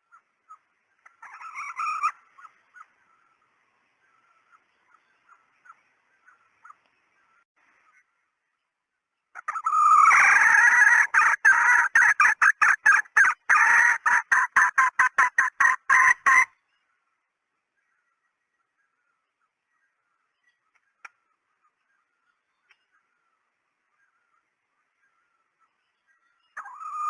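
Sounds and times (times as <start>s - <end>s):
hen clucking: 0.1s - 3.0s, 9.4s - 16.6s, 26.6s - 27.0s.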